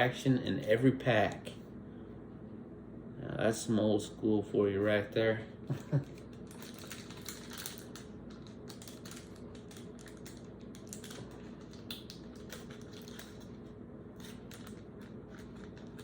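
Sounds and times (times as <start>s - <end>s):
steady low hum: 0.0s - 16.0s
card packs and box handled: 6.1s - 13.6s, 14.2s - 16.0s.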